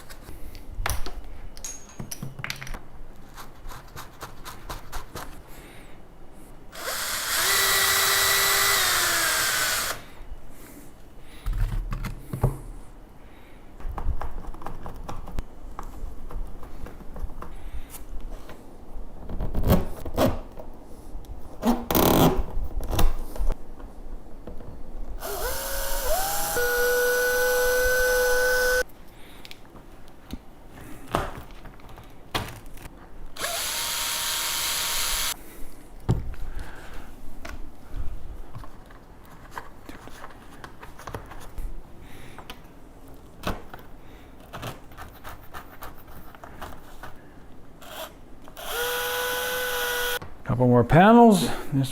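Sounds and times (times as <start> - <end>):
knocks and clicks of parts handled: 0.0 - 2.9
power drill whining: 6.8 - 10.1, 25.2 - 28.8, 33.4 - 35.4, 47.8 - 50.2.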